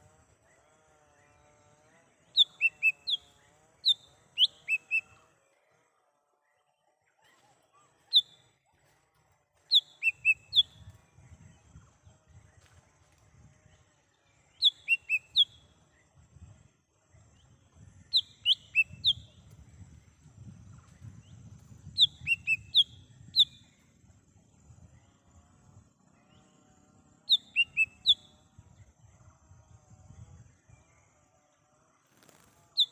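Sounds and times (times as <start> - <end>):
bird whistled calls: 3.9 - 5.1, 9.7 - 10.8, 14.6 - 15.6, 22.0 - 23.7, 27.3 - 28.3.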